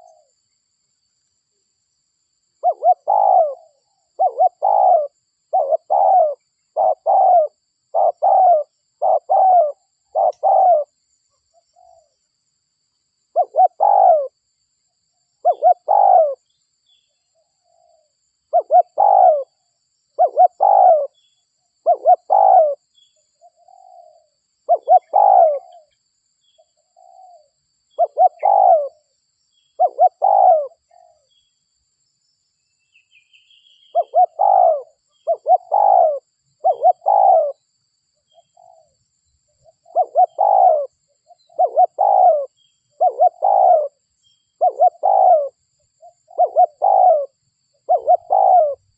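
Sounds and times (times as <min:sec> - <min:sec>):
dove cooing: 0:00.0 - 0:00.3, 0:02.6 - 0:10.9, 0:13.3 - 0:14.4, 0:15.4 - 0:16.5, 0:17.6 - 0:19.6, 0:20.2 - 0:21.2, 0:21.8 - 0:22.8, 0:23.4 - 0:26.0, 0:26.9 - 0:29.1, 0:29.8 - 0:31.3, 0:33.8 - 0:37.6, 0:38.3 - 0:39.0, 0:39.6 - 0:44.0, 0:44.6 - 0:48.9
small bird chirping: 0:00.0 - 0:01.3, 0:02.6 - 0:12.4, 0:13.2 - 0:14.4, 0:15.2 - 0:48.9.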